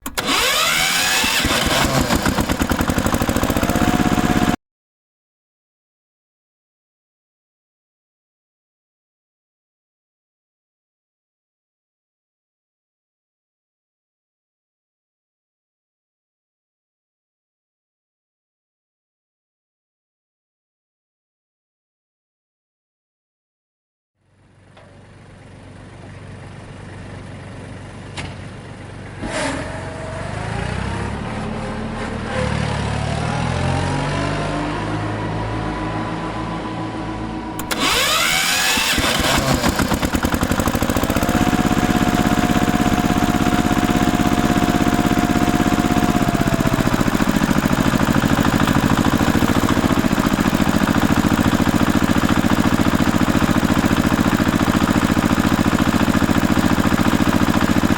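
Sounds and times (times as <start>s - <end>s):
tractor engine running: 0.0s - 4.6s, 24.4s - 32.4s, 34.7s - 57.9s.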